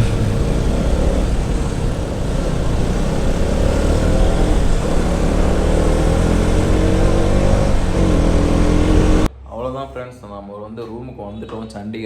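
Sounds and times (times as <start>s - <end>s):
motorcycle engine: 0.0s - 9.3s.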